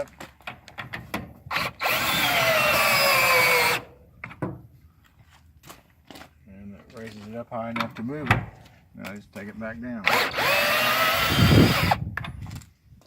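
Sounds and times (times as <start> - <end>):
power drill whining: 1.5 - 3.8, 10.0 - 12.1.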